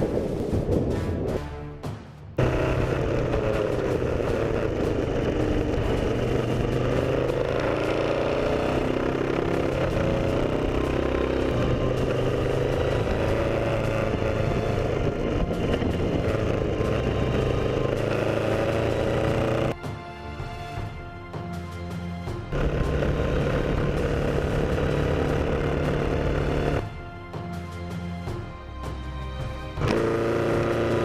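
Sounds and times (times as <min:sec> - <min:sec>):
road and wind noise: 0:00.0 - 0:19.8, 0:20.4 - 0:31.0
motorcycle engine running: 0:02.4 - 0:19.8, 0:22.4 - 0:27.1, 0:29.8 - 0:31.0.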